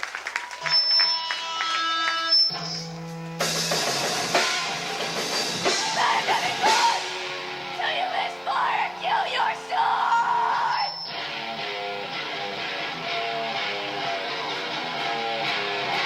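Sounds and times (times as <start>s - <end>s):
live rock band playing: 1.4s - 7.8s, 11.0s - 16.0s
drum kit with cymbals: 2.5s - 7.5s.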